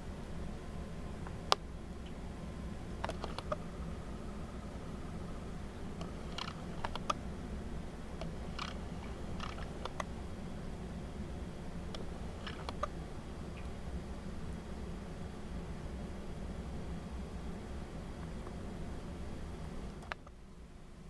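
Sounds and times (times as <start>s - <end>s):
birds clicking calls: 3.0s - 3.7s, 6.0s - 7.2s, 8.2s - 10.1s, 11.9s - 13.8s.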